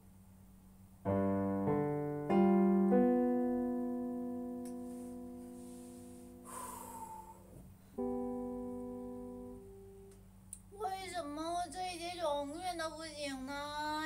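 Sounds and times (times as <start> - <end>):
piano chords: 1.0 - 10.3.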